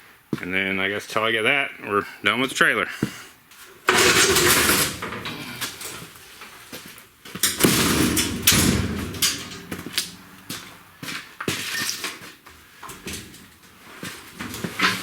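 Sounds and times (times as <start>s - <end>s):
sharp knocks and clanks: 7.3s - 11.7s
scraping rushes: 7.5s - 11.2s.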